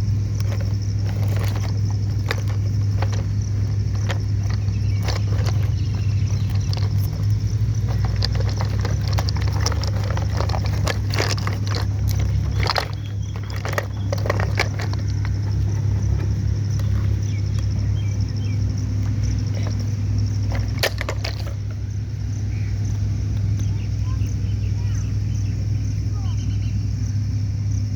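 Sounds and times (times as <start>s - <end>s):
clicks and knocks: 0.0s - 21.8s
motor humming: 0.0s - 27.8s.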